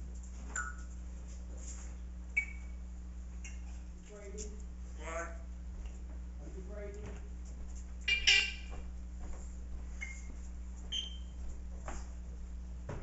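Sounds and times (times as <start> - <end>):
parrot whistled beeps: 2.4 - 2.7
parrot shrill call: 8.1 - 8.6.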